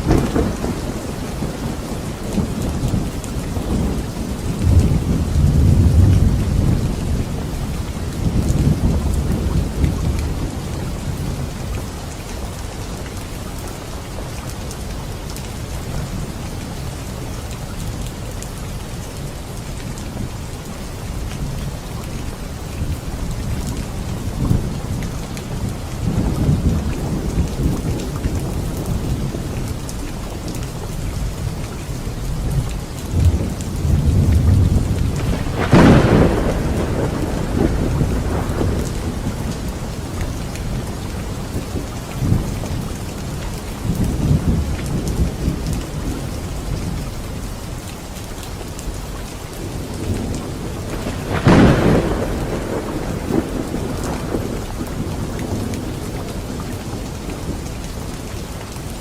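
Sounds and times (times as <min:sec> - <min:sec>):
sharp thunderclap: 0:00.0 - 0:07.5, 0:33.1 - 0:42.6, 0:49.8 - 0:57.6
thunder rumbling: 0:00.0 - 0:12.8, 0:22.3 - 0:47.4, 0:49.6 - 0:58.5
steady rain: 0:00.0 - 0:59.0.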